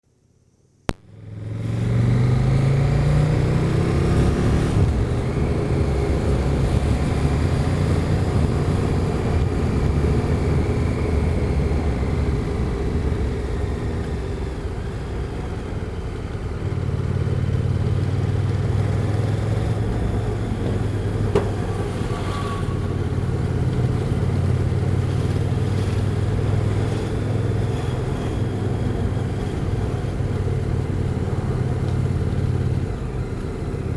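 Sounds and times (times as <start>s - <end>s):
motorcycle engine accelerating: 1.0s - 33.9s.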